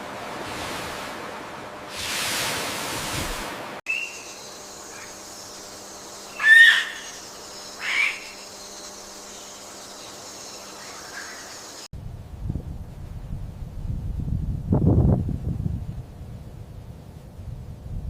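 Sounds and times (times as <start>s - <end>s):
low rumble of wind: 0.0s - 3.8s, 11.9s - 18.0s
high wild animal calls: 6.3s - 8.4s.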